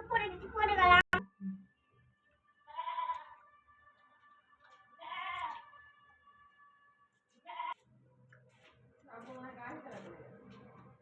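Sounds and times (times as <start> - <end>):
animal bleating: 2.7 - 3.4, 4.9 - 5.8, 7.4 - 7.8.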